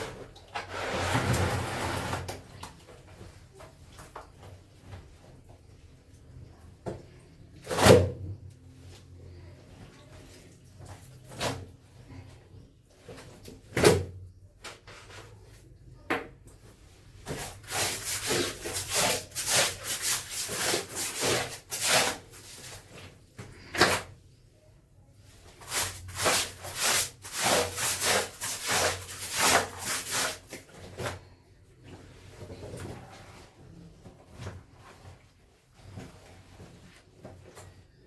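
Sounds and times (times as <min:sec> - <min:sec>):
wet clothes scrubbed by hand: 0:17.1 - 0:23.0, 0:25.5 - 0:32.4.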